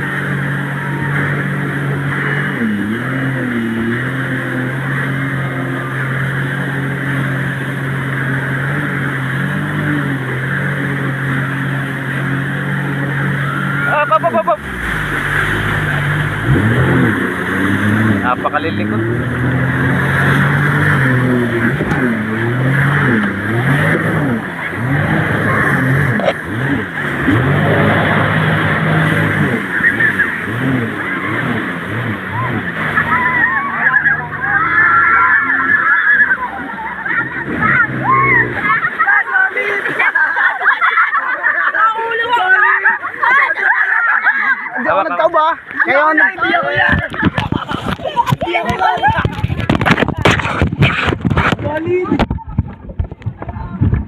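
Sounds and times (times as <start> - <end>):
constant rushing noise: 0.0 - 54.0
motorboat engine running: 0.0 - 54.0
rushing noise: 13.2 - 18.5.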